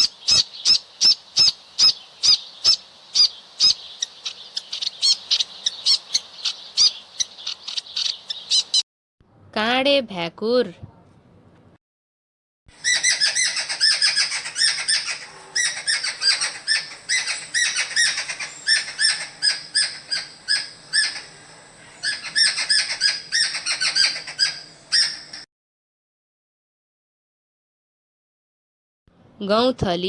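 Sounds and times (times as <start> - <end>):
bird chattering ringing notes: 0.0 - 8.8.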